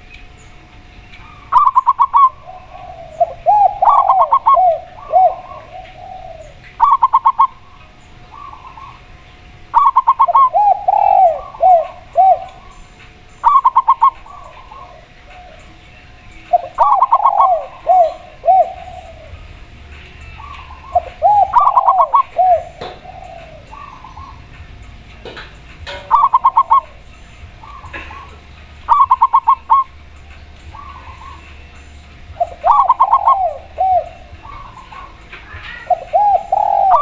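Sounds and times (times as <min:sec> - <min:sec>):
dove staccato notes: 0:00.0 - 0:37.0
dove cooing: 0:01.0 - 0:37.0.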